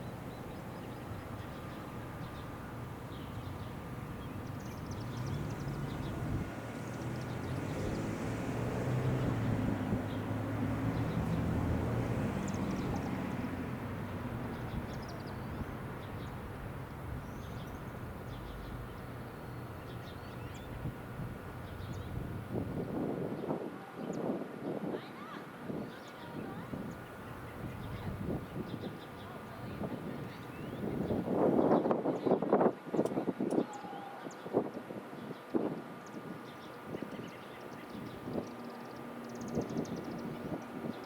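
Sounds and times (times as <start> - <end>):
small birds chirping: 0.0 - 22.4, 23.3 - 41.0
distant engine rumble: 0.0 - 23.0.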